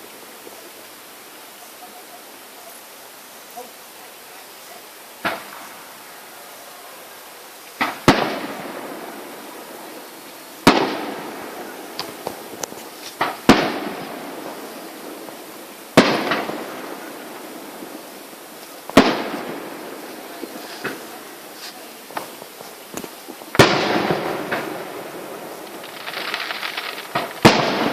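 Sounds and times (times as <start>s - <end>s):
small fireworks pops: 5.2s - 5.8s, 7.6s - 27.9s
fireworks bangs with echo: 5.2s - 6.2s, 7.8s - 27.9s.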